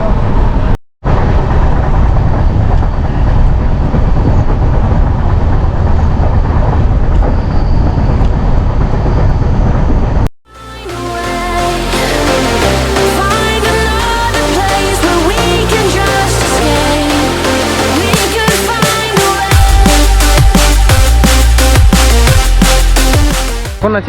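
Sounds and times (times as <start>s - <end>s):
train rumbling and rattling: 0.0s - 10.3s.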